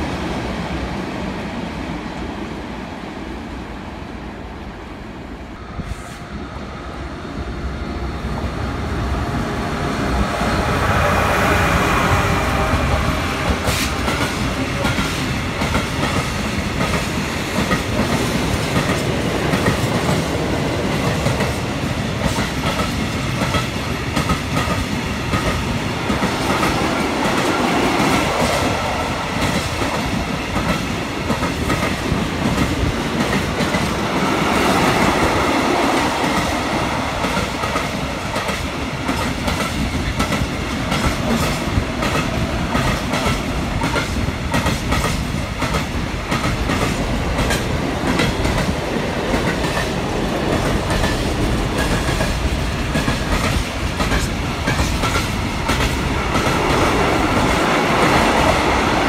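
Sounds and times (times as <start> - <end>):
train wheels clacking over rail joints: 13.4 - 59.0.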